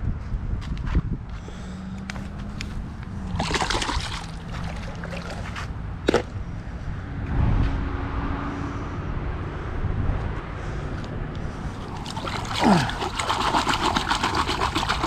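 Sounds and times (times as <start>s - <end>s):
water splashing and sloshing: 2.5s - 6.4s, 11.5s - 15.0s.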